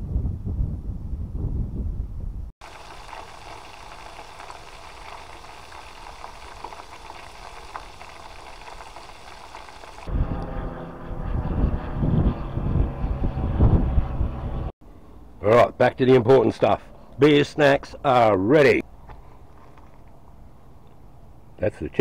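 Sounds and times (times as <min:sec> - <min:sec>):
food deep-frying in hot oil: 0:02.6 - 0:10.1
low rumble: 0:10.0 - 0:14.8.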